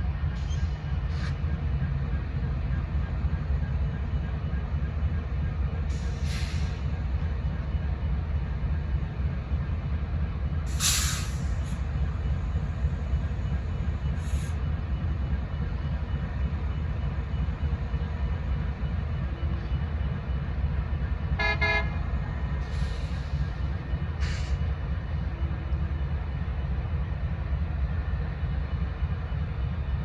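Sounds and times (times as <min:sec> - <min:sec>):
train rumbling: 0:00.0 - 0:30.0
air brake hiss: 0:00.5 - 0:01.4, 0:05.9 - 0:06.9, 0:10.7 - 0:11.8, 0:22.6 - 0:23.5, 0:24.2 - 0:24.6.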